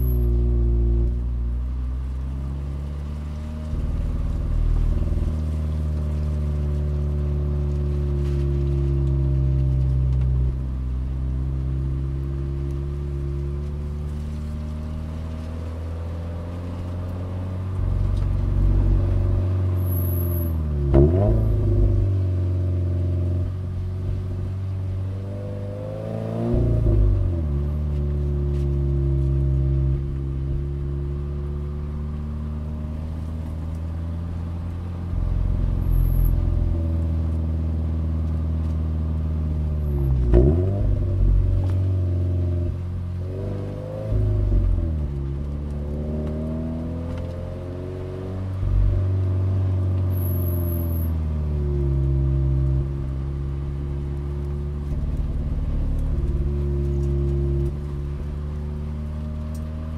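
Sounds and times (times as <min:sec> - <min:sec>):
car engine revving from inside: 0:00.0 - 0:59.9.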